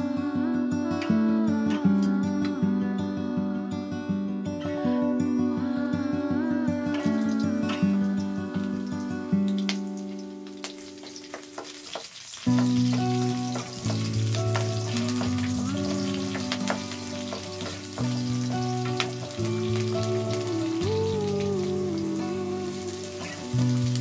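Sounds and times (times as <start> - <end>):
soft background music: 0.0 - 24.0
chillies sizzling in hot oil: 7.0 - 24.0.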